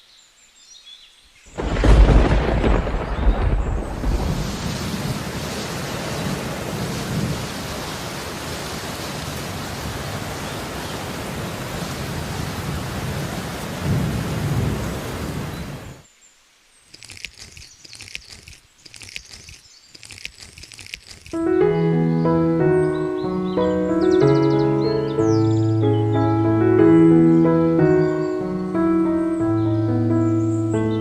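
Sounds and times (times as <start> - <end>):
rain falling: 1.5 - 21.5
low rolls of thunder: 1.6 - 16.0.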